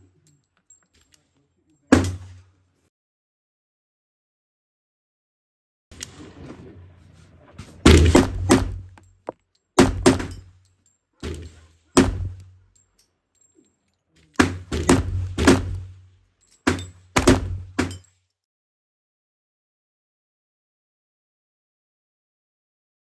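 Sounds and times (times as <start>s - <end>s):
pistol shots: 7.9s - 9.0s, 9.8s - 10.4s, 11.2s - 12.6s, 14.4s - 16.0s, 16.7s - 18.0s.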